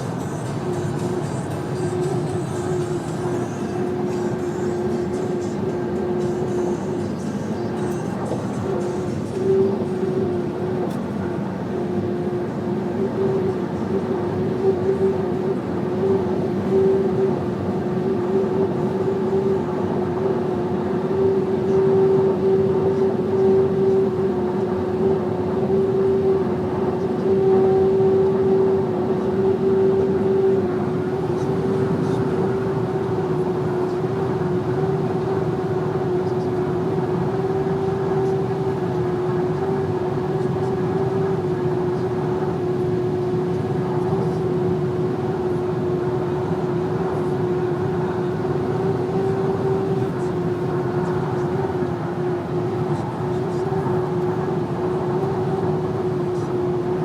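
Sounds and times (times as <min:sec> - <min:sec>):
road and engine noise: 0:00.0 - 0:57.0.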